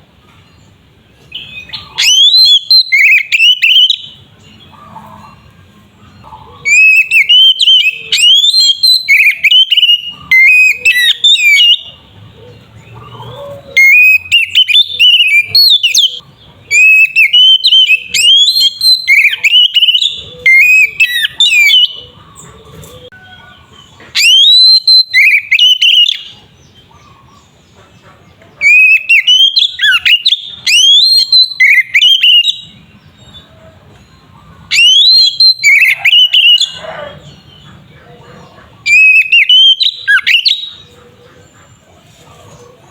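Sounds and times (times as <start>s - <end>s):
bird singing whistled phrases: 1.3s - 4.2s, 6.6s - 12.0s, 13.8s - 22.1s, 24.2s - 26.4s, 28.6s - 32.8s, 34.7s - 37.0s, 38.9s - 40.8s.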